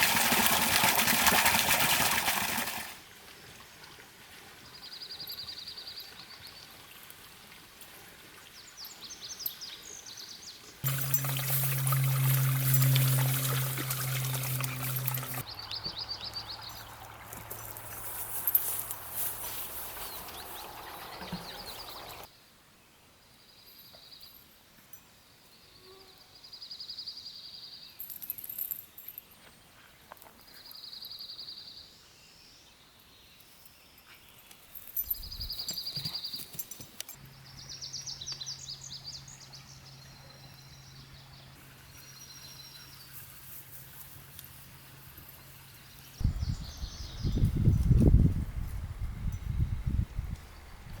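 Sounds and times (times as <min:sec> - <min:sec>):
low steady hum: 0:10.8 - 0:15.4
short high pulsed trills: 0:10.8 - 0:15.4.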